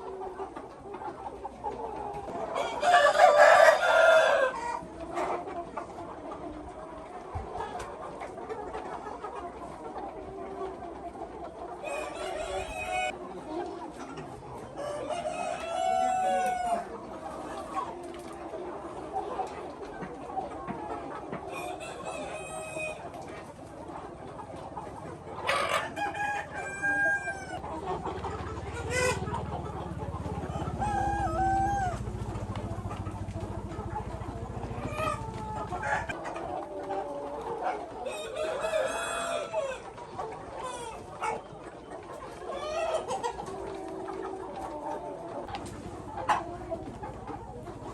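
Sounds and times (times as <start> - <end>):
chickens clucking: 0.0 - 47.9
rooster crowing: 2.6 - 4.6.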